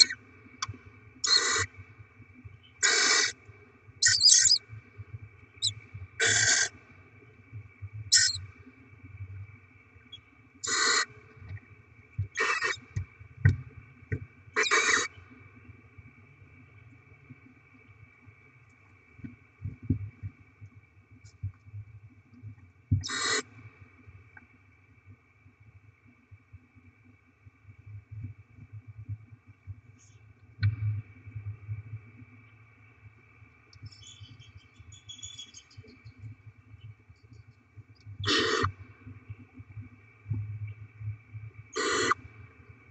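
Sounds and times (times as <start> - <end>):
electrical hum: 0.0 - 14.9
owlets hissing screeches: 1.2 - 1.7, 2.8 - 3.3, 4.0 - 4.6, 6.2 - 6.7, 8.1 - 8.4, 10.6 - 11.1, 12.4 - 12.8, 14.6 - 15.1, 41.8 - 42.2.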